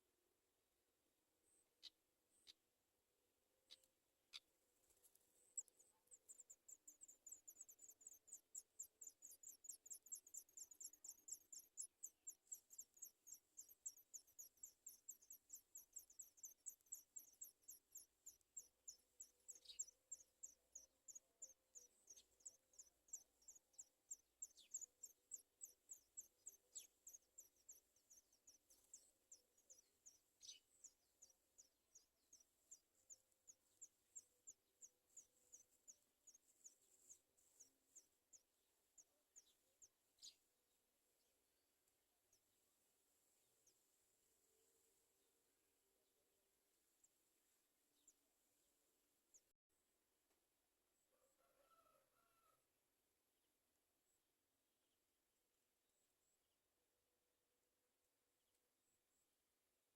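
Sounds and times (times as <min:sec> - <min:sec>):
nestlings begging peeps: 0:05.6 - 0:27.8.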